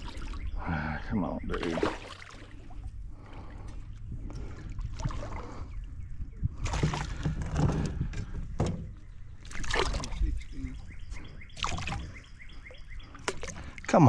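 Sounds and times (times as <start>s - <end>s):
fish splashing at the surface: 1.6s - 2.7s, 9.4s - 10.2s.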